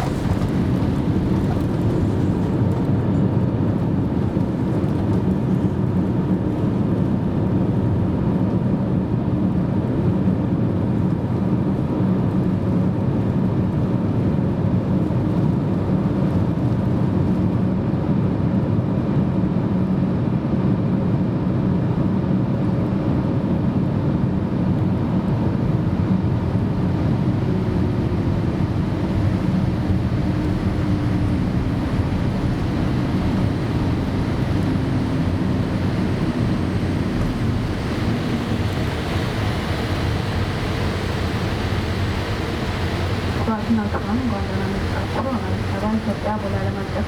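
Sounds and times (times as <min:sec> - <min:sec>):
airliner cabin rumble: 0:00.0 - 0:47.0
faint steady hum: 0:36.4 - 0:47.0.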